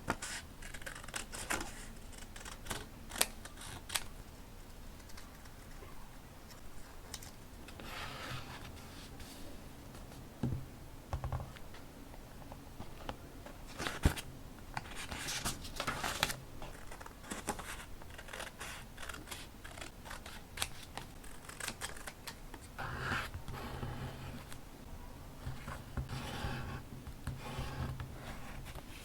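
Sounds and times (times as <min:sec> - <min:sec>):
scissors snipping paper: 0:15.9 - 0:22.6.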